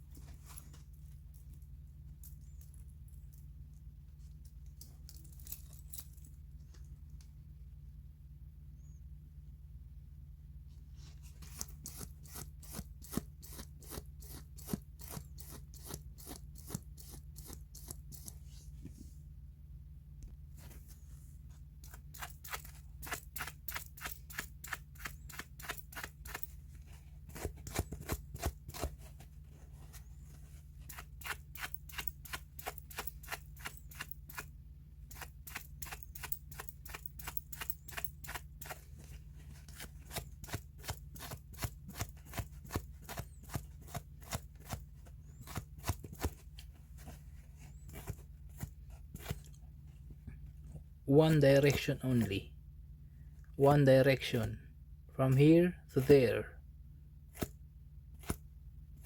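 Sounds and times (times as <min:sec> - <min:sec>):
steady low hum: 0:00.0 - 0:59.0
sharp clicks or scraping strokes: 0:30.9 - 0:34.5.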